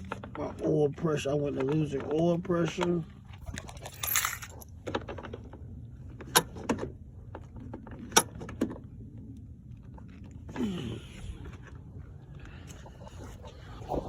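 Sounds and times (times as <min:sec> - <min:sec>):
steady low hum: 0:00.0 - 0:14.0
light jangling: 0:03.4 - 0:04.7.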